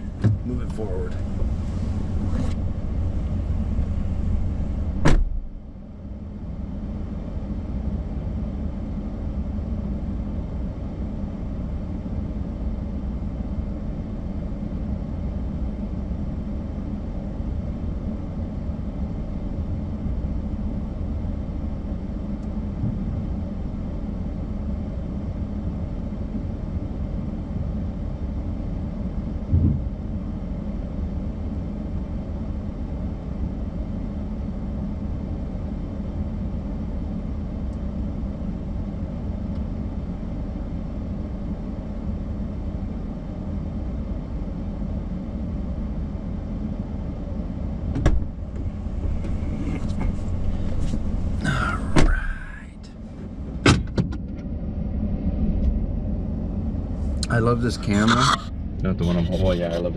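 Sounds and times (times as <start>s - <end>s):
truck engine idling: 0.0s - 5.8s, 48.3s - 53.2s
thump: 5.0s - 5.5s, 29.5s - 29.9s, 47.9s - 48.3s, 52.0s - 52.2s, 53.6s - 54.1s.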